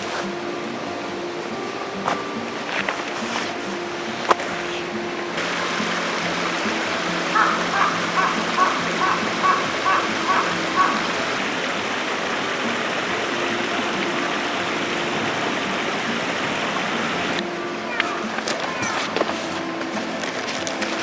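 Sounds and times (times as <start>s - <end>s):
rushing water: 0.0s - 21.0s
short repeated animal calls: 7.4s - 11.2s.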